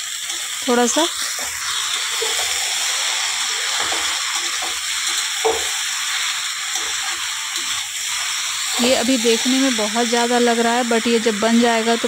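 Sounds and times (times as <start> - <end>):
vegetables sizzling in oil: 0.0 - 12.0
spatula knocking: 3.7 - 6.0.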